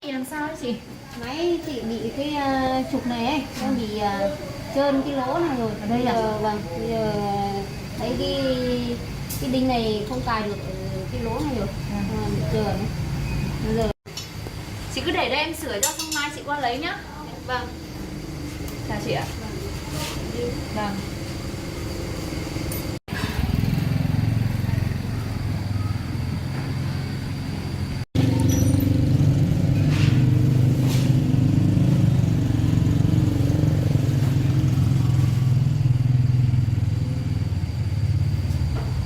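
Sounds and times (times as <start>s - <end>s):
engine humming steadily: 19.5s - 39.0s.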